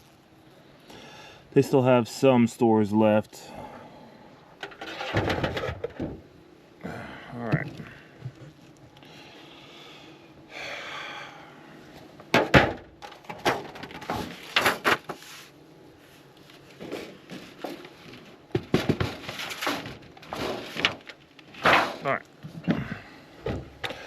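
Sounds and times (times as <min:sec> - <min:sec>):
rustle of beehive frames: 0:07.5 - 0:10.5, 0:13.0 - 0:24.0
wooden boxes knocking and clunking: 0:12.3 - 0:15.1, 0:18.5 - 0:24.0.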